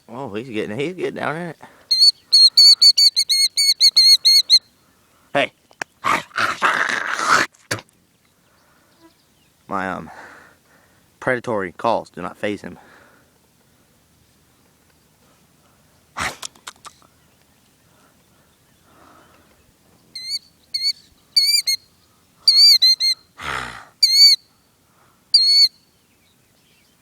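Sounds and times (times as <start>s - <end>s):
bird shrill alarm calls: 1.9s - 4.7s, 20.1s - 21.9s, 22.5s - 23.3s, 24.0s - 24.5s, 25.3s - 25.8s
sharp clicks: 16.3s - 17.5s.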